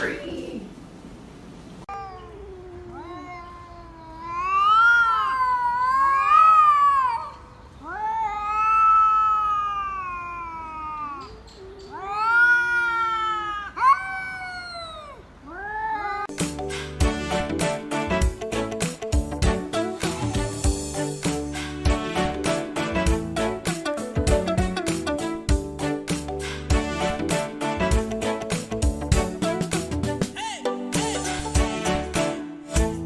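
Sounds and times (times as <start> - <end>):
cat yowling: 1.9 - 16.3
second cat yowling: 1.9 - 16.3.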